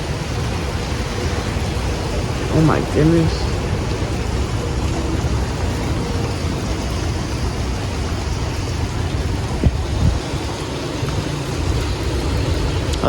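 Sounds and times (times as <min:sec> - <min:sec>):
rain: 0:00.0 - 0:13.0
storm wind gusting: 0:00.0 - 0:13.0
wind buffeting microphone: 0:00.0 - 0:13.0.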